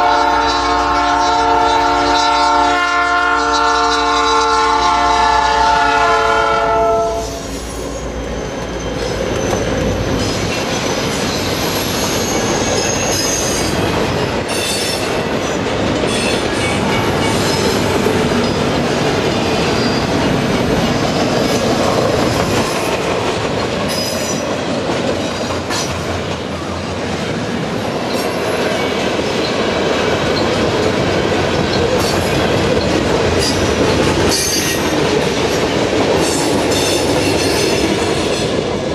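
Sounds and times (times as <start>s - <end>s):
train horn: 0.0s - 7.6s
train wheels rumbling on rails: 0.0s - 38.9s
high-pitched wheel squeals: 6.8s - 13.8s, 19.7s - 20.2s.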